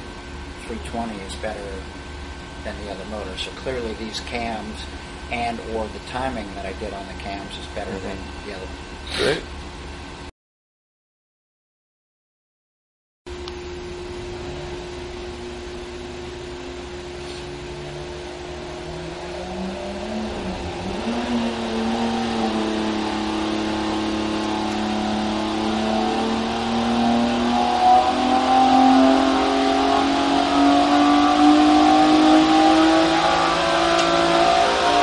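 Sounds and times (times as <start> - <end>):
engine revving on dynamometer: 14.0 - 35.0.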